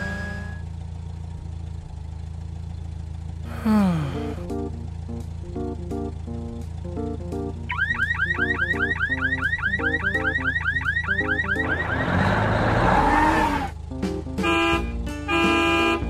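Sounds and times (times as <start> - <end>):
horn-like honks: 0.0 - 0.7, 14.4 - 16.0
background music: 3.9 - 16.0.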